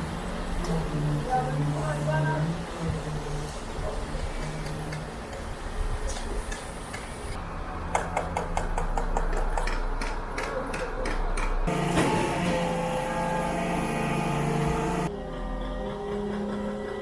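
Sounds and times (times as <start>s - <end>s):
concrete pump humming: 0.0s - 5.4s, 11.7s - 15.1s.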